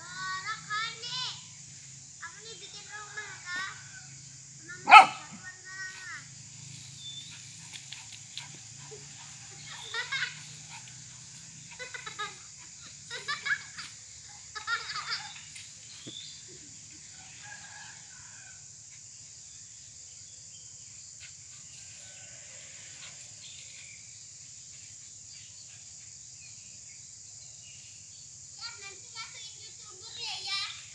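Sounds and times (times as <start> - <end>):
steady high-pitched hiss: 0.0 - 30.9
chickens calling: 4.7 - 5.4.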